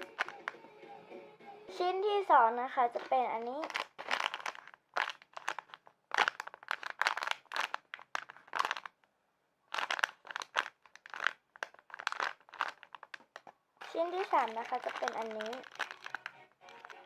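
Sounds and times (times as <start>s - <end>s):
crinkly wrapping crackling: 0.0s - 0.6s, 2.3s - 9.1s, 9.7s - 17.0s.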